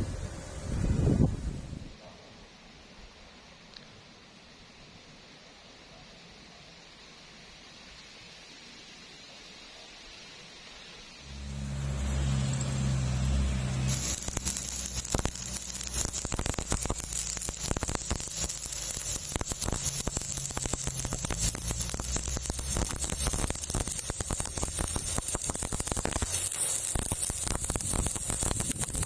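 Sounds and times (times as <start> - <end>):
welding arc crackling: 11.2 - 29.0
welding machine humming: 11.2 - 29.0.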